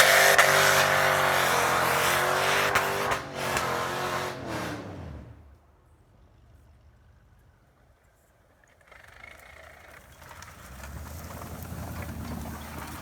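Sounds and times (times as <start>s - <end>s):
tyres driving through snow: 0.0s - 5.4s, 8.9s - 13.0s.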